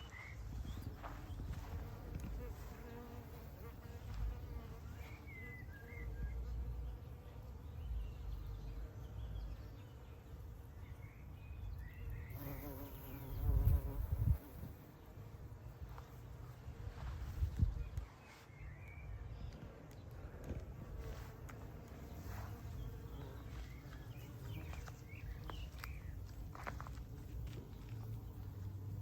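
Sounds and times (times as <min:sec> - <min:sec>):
bee buzzing in flight: 0:01.0 - 0:07.5, 0:12.3 - 0:14.9, 0:21.0 - 0:29.0.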